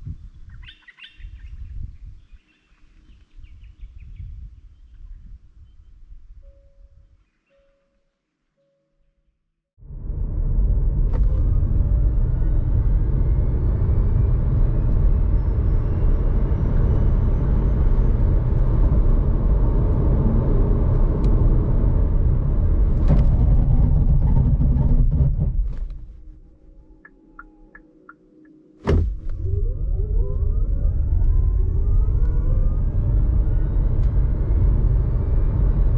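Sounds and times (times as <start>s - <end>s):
faint rising whine: 9.8s - 23.0s, 26.2s - 35.9s
car drivetrain and road rumble: 9.8s - 26.7s, 28.8s - 35.9s.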